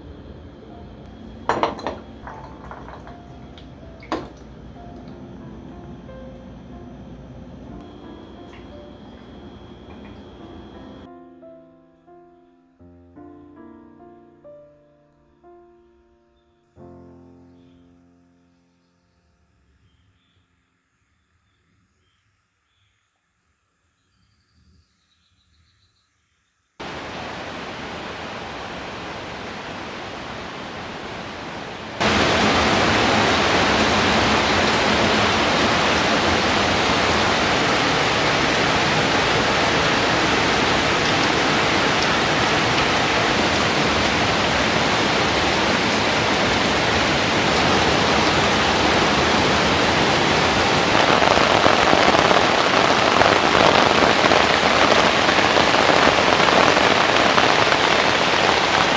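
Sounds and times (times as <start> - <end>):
steady rain falling: 1.0 - 5.2, 7.8 - 11.1, 26.8 - 58.9.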